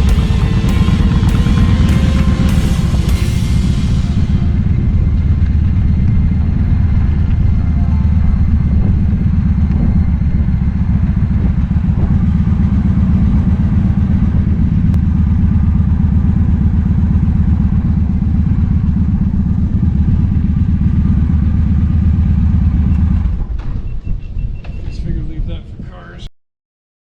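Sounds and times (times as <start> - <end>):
motorcycle engine droning: 0.0 - 24.6.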